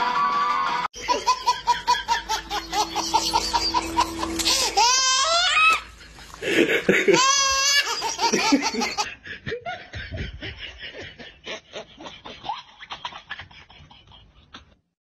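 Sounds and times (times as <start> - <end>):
person giggling: 1.0 - 4.9, 5.6 - 14.8
guitar music: 2.3 - 5.1.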